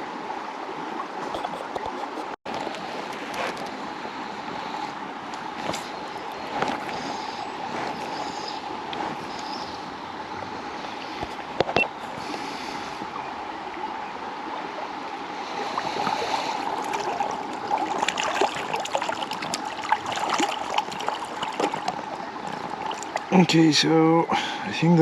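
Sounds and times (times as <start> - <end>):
river running over stones: 0.0 - 25.0
irregular splashing and crackling: 5.2 - 9.6, 15.5 - 23.6.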